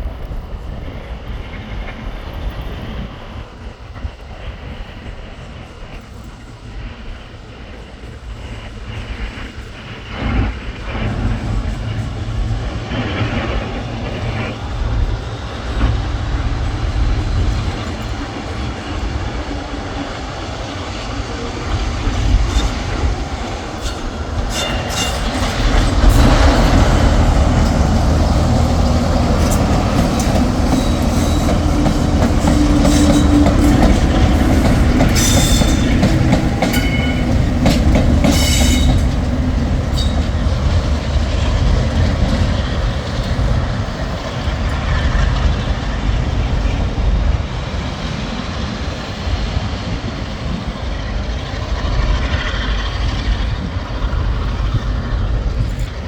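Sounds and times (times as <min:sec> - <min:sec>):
locomotive engine rumble: 0:08.4 - 0:56.0
wheels clicking over rail joints: 0:21.6 - 0:46.7
wheel squeals: 0:28.8 - 0:40.9.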